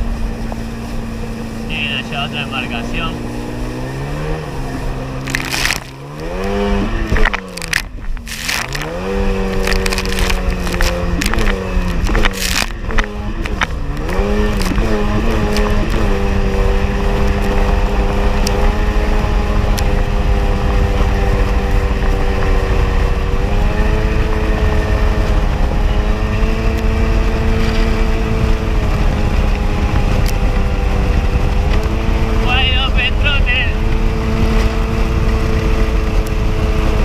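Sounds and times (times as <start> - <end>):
jet ski engine running: 0.0 - 37.0
wind and water rushing: 0.0 - 37.0.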